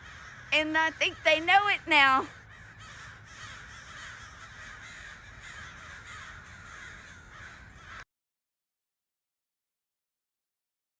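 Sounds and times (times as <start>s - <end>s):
distant crows calling: 0.0s - 8.1s.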